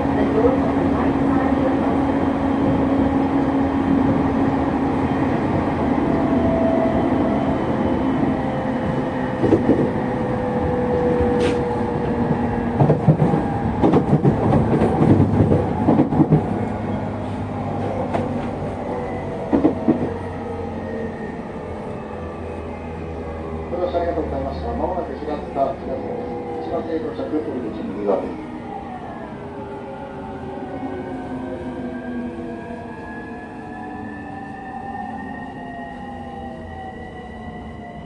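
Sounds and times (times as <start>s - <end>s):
train motor hum: 0.0s - 28.8s.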